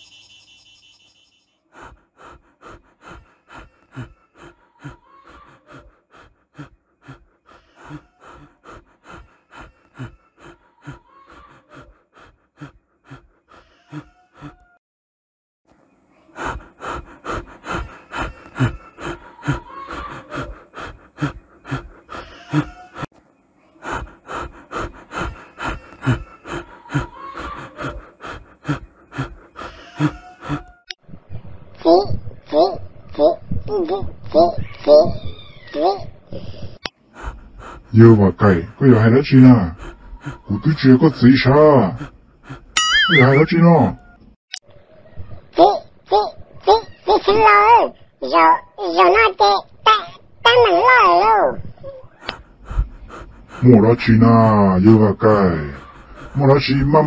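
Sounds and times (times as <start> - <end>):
man panting while running: 1.7 - 14.8, 16.4 - 23.1, 23.8 - 30.8, 37.0 - 42.8, 52.2 - 57.0.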